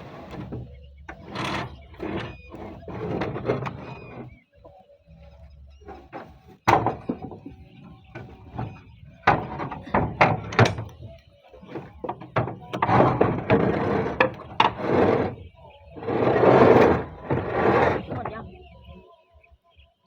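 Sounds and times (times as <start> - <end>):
roof tiles knocking: 5.9 - 15.4.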